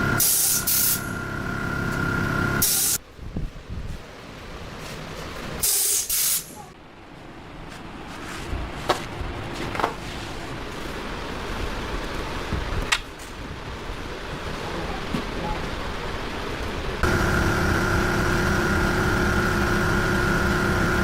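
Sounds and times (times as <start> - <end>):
compressed air hissing: 0.2 - 1.2, 2.6 - 3.0, 5.6 - 6.6.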